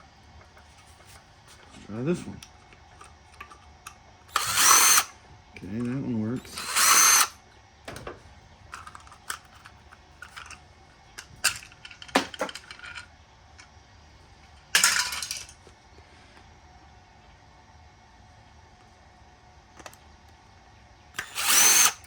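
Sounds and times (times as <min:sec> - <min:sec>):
small metal parts clattering: 0:11.4 - 0:13.1, 0:14.8 - 0:15.6.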